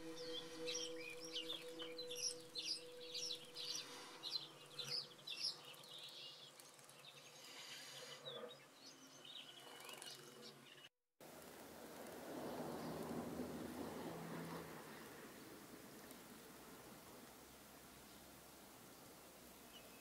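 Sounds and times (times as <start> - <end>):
soft steady low tones: 0.0 - 7.2
small birds chirping: 0.0 - 10.9, 14.7 - 20.0.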